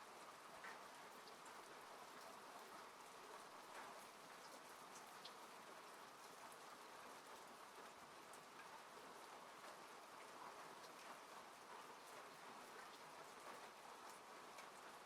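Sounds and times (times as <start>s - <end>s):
rain pattering on a car: 0.0s - 15.0s.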